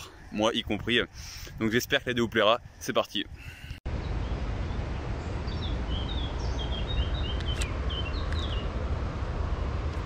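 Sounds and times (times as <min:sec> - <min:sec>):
small birds chirping: 0:03.4 - 0:08.8
brief clicks: 0:07.4 - 0:07.7.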